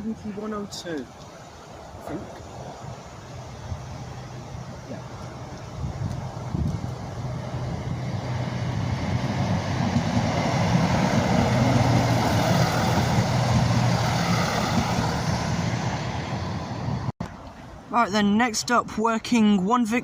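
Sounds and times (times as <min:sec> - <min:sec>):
diesel train engines humming: 0:00.0 - 0:17.1
wheels rumbling on rail: 0:01.9 - 0:17.4.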